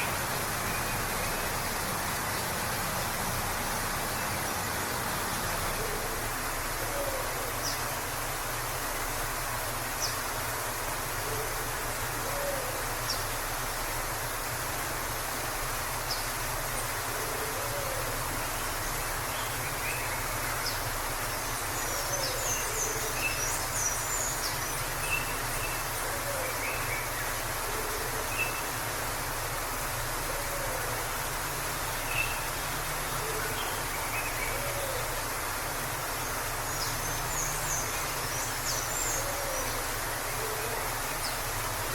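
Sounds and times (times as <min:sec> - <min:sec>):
waterfall rushing: 0:00.0 - 0:41.9
songbirds chirping: 0:31.0 - 0:41.9.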